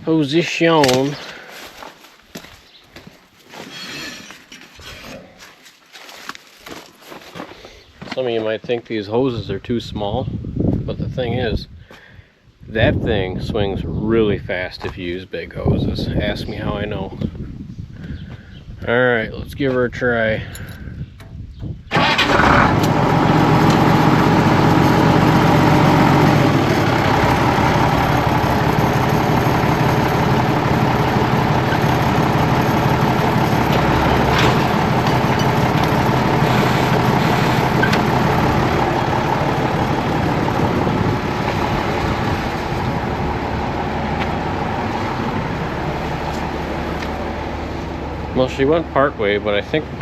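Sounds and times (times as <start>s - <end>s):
tractor engine running: 21.9s - 50.0s.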